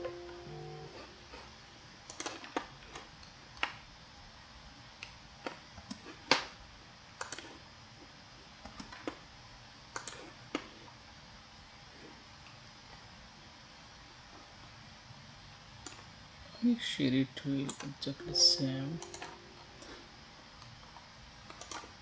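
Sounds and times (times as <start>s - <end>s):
faint room hiss: 0.0s - 22.0s
computer mouse clicking: 2.1s - 3.8s, 5.0s - 6.4s, 7.2s - 7.6s, 9.9s - 10.6s, 21.5s - 21.9s.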